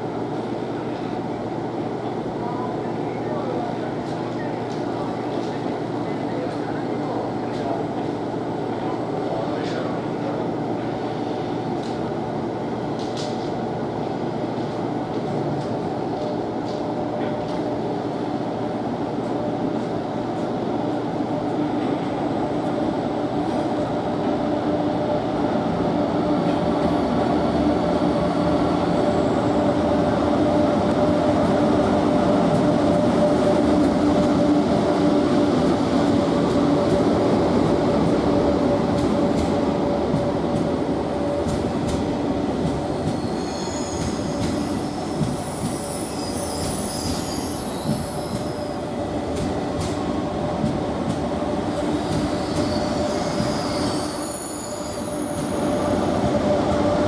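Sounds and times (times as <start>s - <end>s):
train rumble: 3.3s - 57.0s
wheel squeal: 43.1s - 48.8s, 52.3s - 55.9s.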